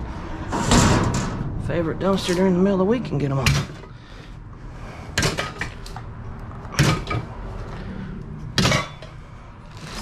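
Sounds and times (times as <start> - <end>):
scrap metal clattering in dumpster: 0.3 - 2.5.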